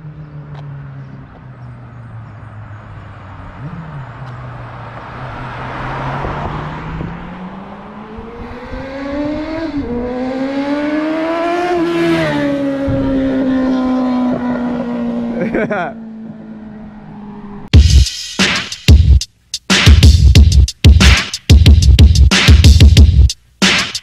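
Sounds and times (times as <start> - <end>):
motorcycle engine accelerating: 0.0 - 17.7.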